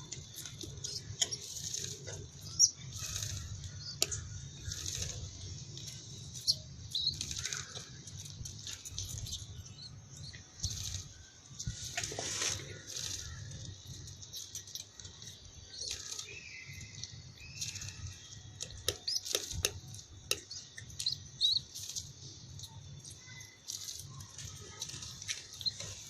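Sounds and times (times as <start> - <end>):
wings fluttering: 0.2 - 9.5, 10.6 - 16.3.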